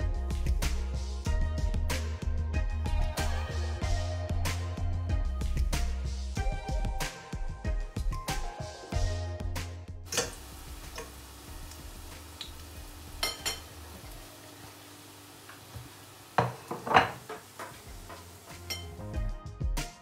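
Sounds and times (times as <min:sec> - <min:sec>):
dumplings sizzling in oil: 0:10.1 - 0:19.3.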